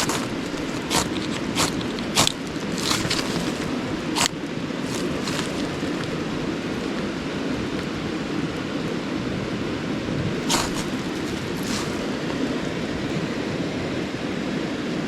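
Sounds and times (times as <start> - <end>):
ferro rod scraping: 0.0 - 7.0, 10.4 - 12.3.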